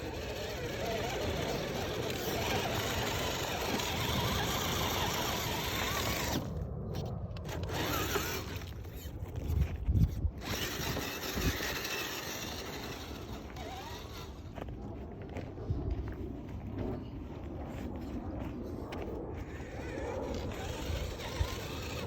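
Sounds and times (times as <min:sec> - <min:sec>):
toy car motor whirring: 0:00.0 - 0:14.6, 0:19.4 - 0:22.0.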